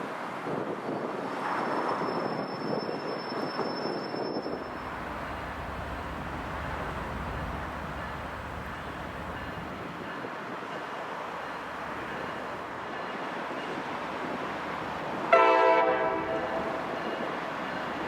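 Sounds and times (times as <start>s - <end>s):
locomotive air horn blast: 15.3s - 16.8s.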